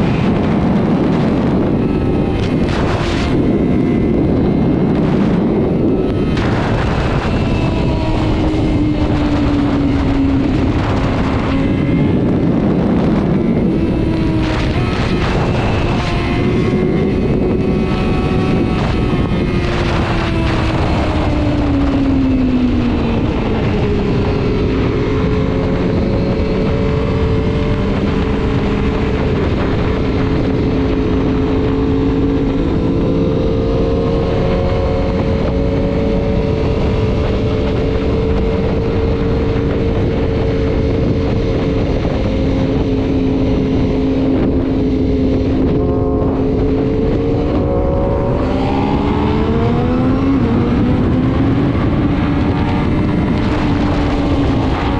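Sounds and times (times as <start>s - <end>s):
motorcycle engine cruising: 0.0s - 54.9s
wind rush: 0.0s - 54.9s.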